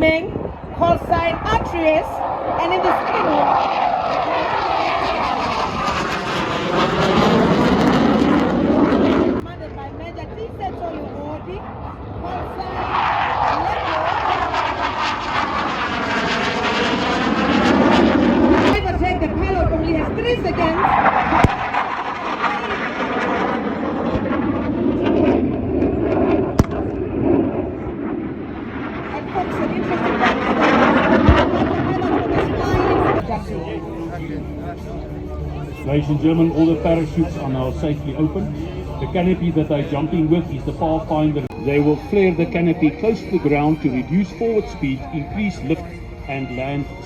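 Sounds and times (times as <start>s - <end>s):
aircraft engine drone: 0.0s - 47.0s
airplane flying past: 0.0s - 47.0s
sharp crack: 21.3s - 22.2s, 26.5s - 27.4s.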